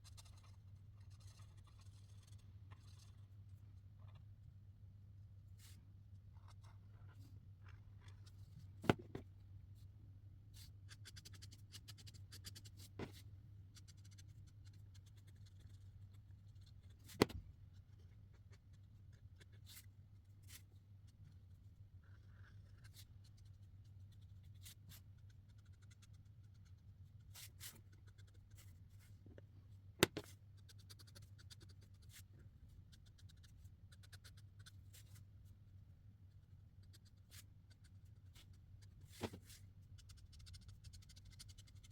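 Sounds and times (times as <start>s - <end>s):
markers scratching on paper: 0.0s - 3.3s, 13.8s - 17.2s, 22.0s - 28.8s, 30.1s - 32.2s.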